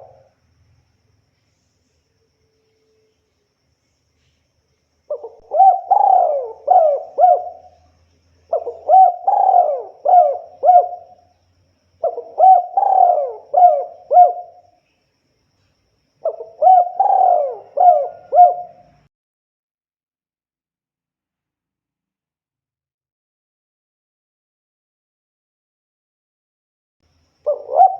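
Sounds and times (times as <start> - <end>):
dove cooing: 0.0 - 0.3, 5.1 - 7.9, 8.5 - 11.2, 12.0 - 14.6, 16.2 - 19.0, 27.5 - 27.9.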